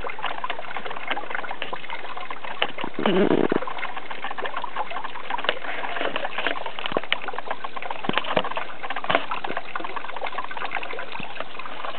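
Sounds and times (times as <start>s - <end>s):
small waterfall splashing: 0.0s - 11.9s
stream running over rocks: 0.0s - 11.9s.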